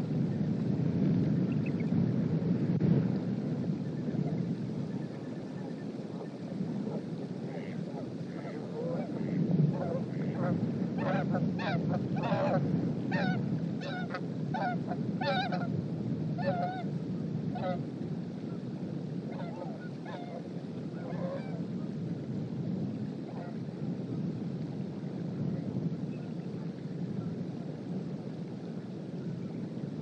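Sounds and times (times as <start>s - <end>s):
strong wind rushing: 0.0s - 19.3s
geese honking: 7.5s - 15.7s, 19.3s - 20.4s.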